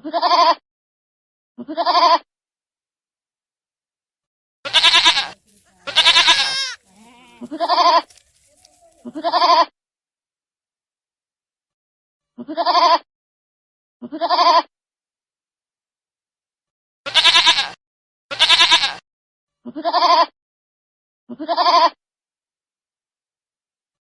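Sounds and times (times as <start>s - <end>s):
baby goat bleating: 0.0s - 0.6s, 1.6s - 2.2s, 4.7s - 9.7s, 12.4s - 13.0s, 14.1s - 14.7s, 17.1s - 19.0s, 19.7s - 20.3s, 21.3s - 21.9s.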